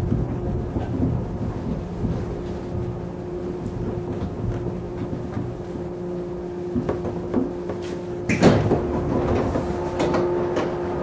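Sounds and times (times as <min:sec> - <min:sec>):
train car steady hum: 0:00.0 - 0:11.0
loud clunk: 0:08.3 - 0:10.8.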